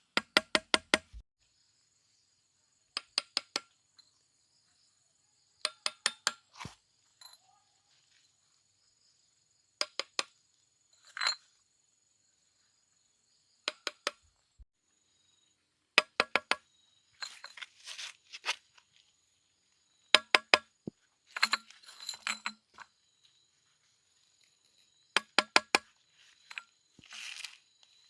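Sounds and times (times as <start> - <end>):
bottles scraping: 21.3 - 22.8
glass bottles clinking: 21.4 - 22.8.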